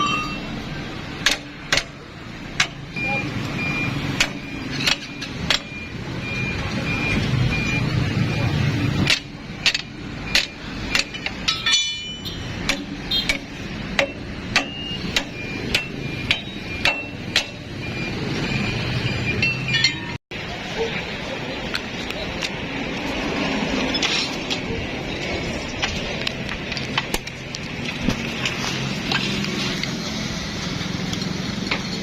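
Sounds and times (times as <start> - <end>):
hammer striking metal: 0.0 - 0.6, 1.2 - 2.0, 9.0 - 17.8.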